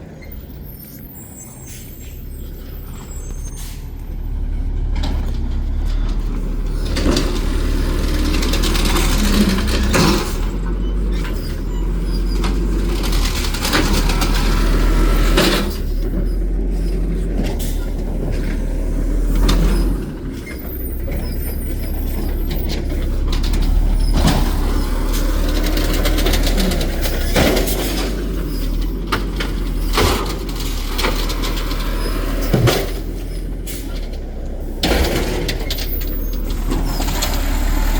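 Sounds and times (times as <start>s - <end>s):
garbage truck diesel engine: 0.0s - 37.9s
air brake hissing: 0.6s - 4.0s
knocks and clanks: 4.8s - 37.9s.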